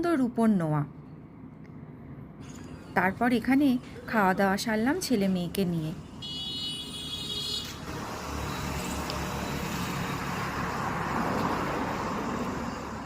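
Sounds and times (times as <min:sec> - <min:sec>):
rush of passing vehicles: 0:05.9 - 0:13.0.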